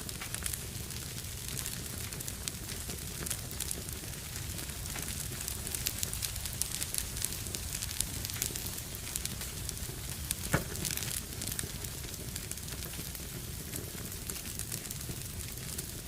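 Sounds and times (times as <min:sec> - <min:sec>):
fire crackling: 0:00.0 - 0:16.0
loud pop from fire: 0:04.5 - 0:15.0.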